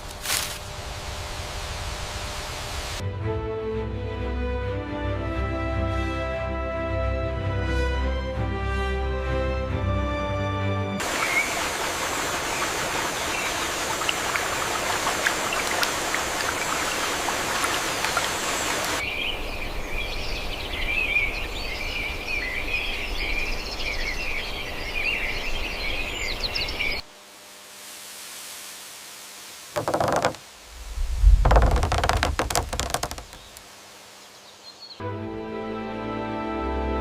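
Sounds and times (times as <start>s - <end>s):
rushing water: 11.0s - 19.1s, 27.8s - 34.4s
birds chirping: 11.0s - 27.0s, 31.4s - 33.6s.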